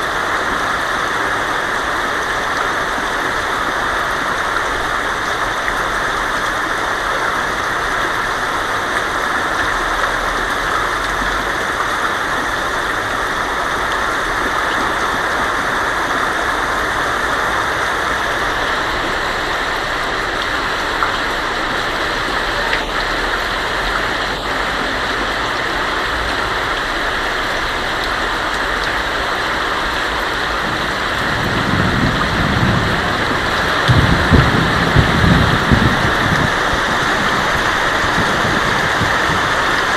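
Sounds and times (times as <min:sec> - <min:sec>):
heavy rain on a tin roof: 0:00.0 - 0:39.9
thunder rumble: 0:30.3 - 0:39.9.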